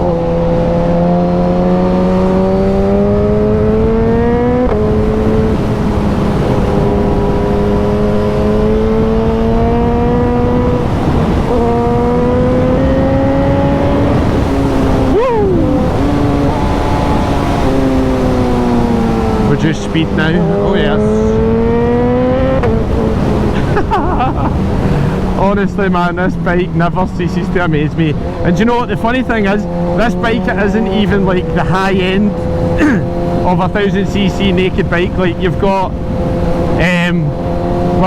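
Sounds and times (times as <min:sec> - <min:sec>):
motorcycle engine accelerating: 0:00.0 - 0:38.0
wind rush on microphone: 0:00.0 - 0:38.0.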